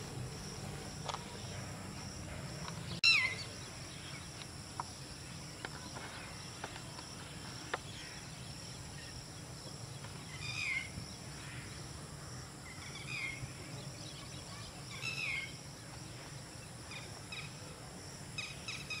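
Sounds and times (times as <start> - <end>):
high insect drone: 0.0 - 19.0
bird chirping: 2.4 - 12.0, 12.6 - 17.7, 18.4 - 19.0.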